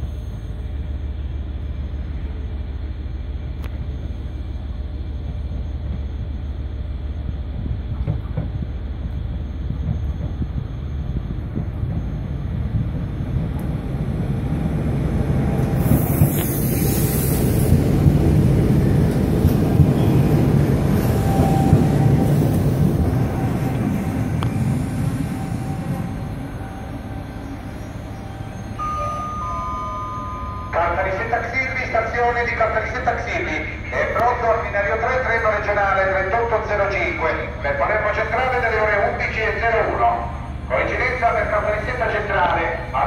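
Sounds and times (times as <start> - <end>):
electric train rumble: 0.0 - 43.0
brief hiss: 15.8 - 17.7.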